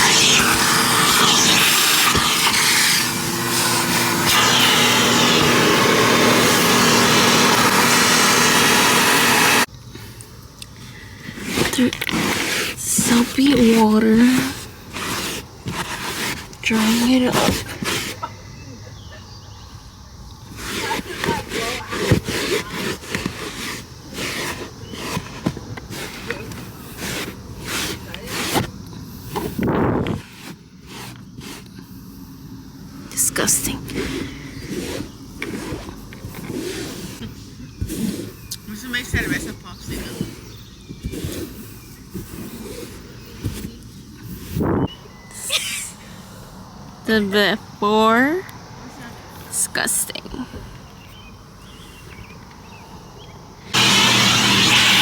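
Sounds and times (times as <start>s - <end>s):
cloth rubbing wet car body: 0.0s - 9.6s, 11.4s - 18.3s, 20.5s - 28.8s, 30.1s - 31.7s, 33.8s - 44.5s
car wash equipment rushing hiss: 0.0s - 9.7s, 53.7s - 55.0s.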